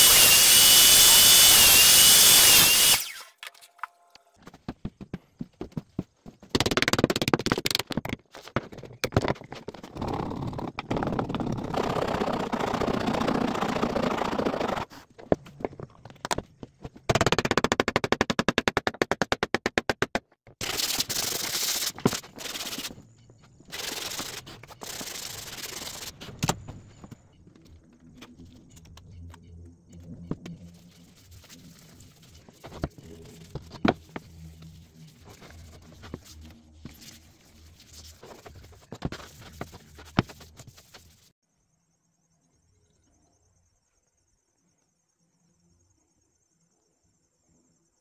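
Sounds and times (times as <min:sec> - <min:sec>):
scratching on wood: 0:20.6 - 0:26.4, 0:30.4 - 0:41.3.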